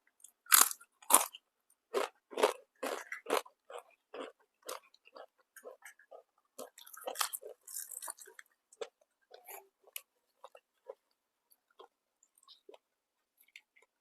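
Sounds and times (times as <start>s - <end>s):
chewing food: 0.2s - 14.0s.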